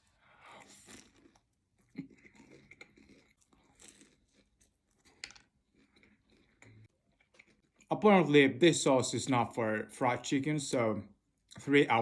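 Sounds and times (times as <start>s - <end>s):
chewing fried chicken: 0.0s - 7.9s.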